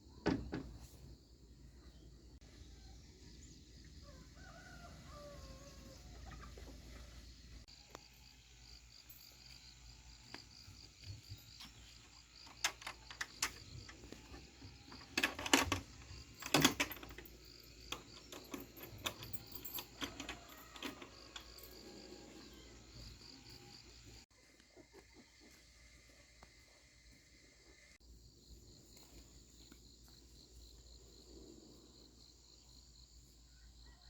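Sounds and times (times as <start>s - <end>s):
insects chirring: 0.1s - 34.0s
knocks and clatters: 11.6s - 21.9s.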